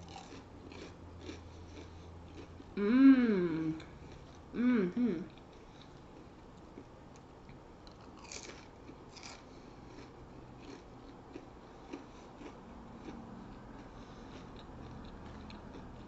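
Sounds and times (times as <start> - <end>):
chewing crackles and clicks: 0.0 - 2.6, 5.3 - 16.0
onion rings crunching: 0.0 - 2.6, 7.8 - 16.0.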